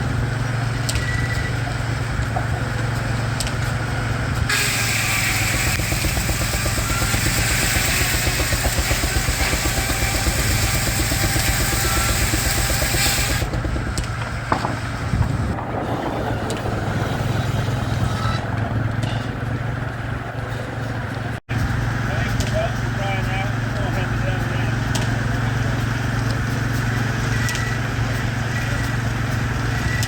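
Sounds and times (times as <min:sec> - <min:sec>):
steam engine beating rhythmically: 0:01.7 - 0:17.0, 0:21.5 - 0:30.0.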